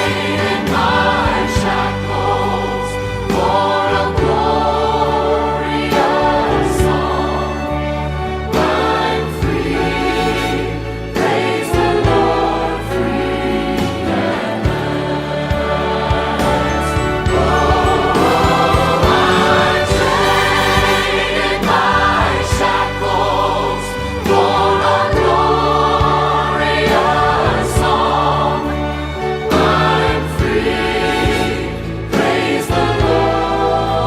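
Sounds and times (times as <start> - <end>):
choir singing worship song: 0.0 - 34.0
instrumental accompaniment: 0.0 - 34.0.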